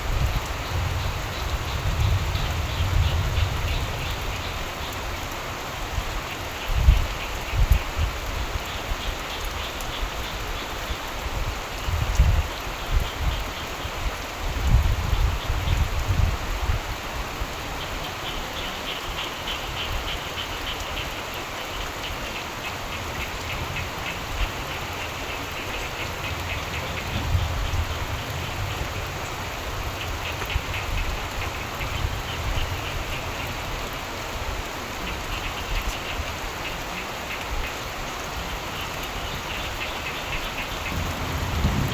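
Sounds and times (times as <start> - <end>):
steady rain falling: 0.0 - 41.9
frogs trilling: 0.3 - 5.3, 17.8 - 34.3, 34.9 - 41.9
low rumbles: 40.8 - 41.9.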